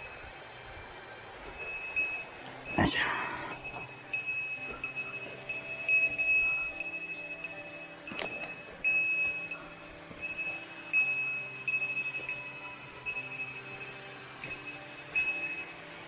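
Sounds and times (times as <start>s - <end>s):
faint low hum of tones: 0.0s - 16.0s
small metal bell ringing: 1.4s - 16.0s.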